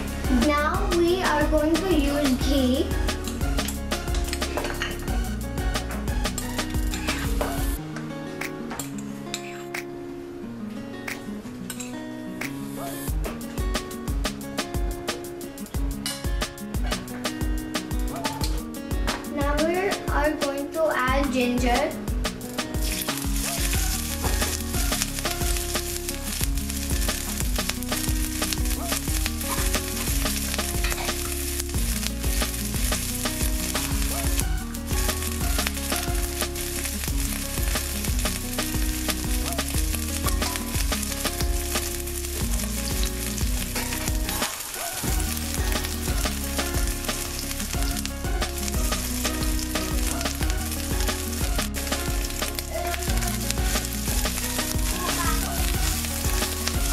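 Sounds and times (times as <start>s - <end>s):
ginger sizzling in oil: 0.0s - 7.8s, 22.2s - 56.9s.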